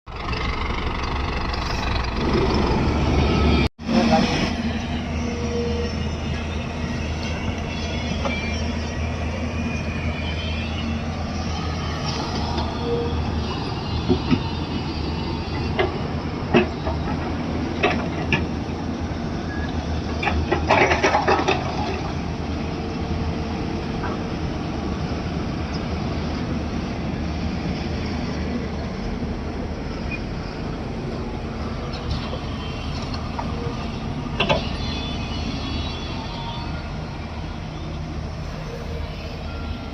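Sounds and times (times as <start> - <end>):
diesel engine running: 0.1 - 19.1.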